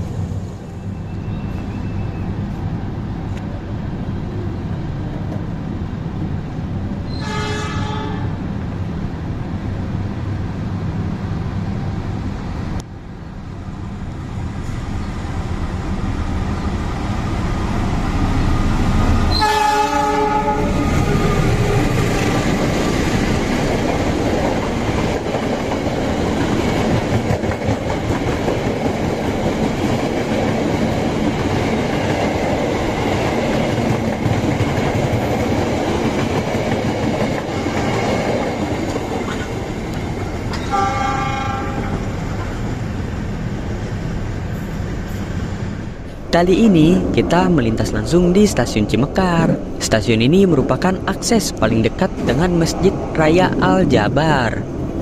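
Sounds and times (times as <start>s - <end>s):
train passing on next track: 0.0s - 55.0s
train wheel and rail noise: 0.0s - 55.0s
train horn: 7.1s - 8.4s, 19.3s - 21.8s, 40.6s - 42.1s.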